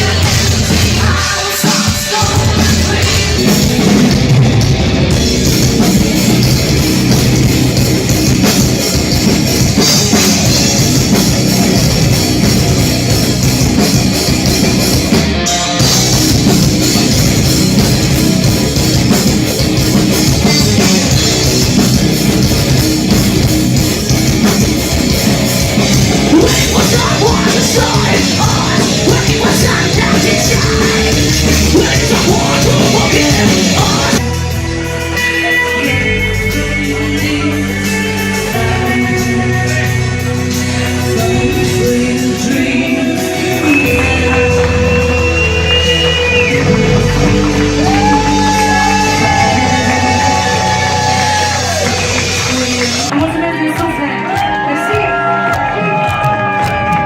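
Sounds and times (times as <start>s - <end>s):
distorted guitars: 0.0s - 57.0s
drum kit: 0.0s - 57.0s.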